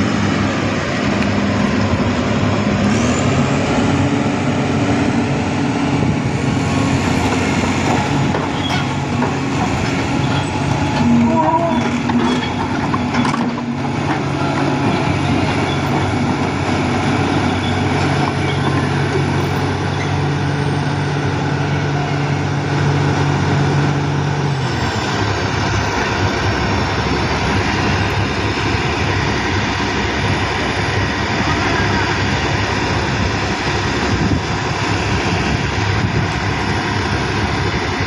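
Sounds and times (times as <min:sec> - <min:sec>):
heavy vehicle engine running: 0:00.0 - 0:38.0.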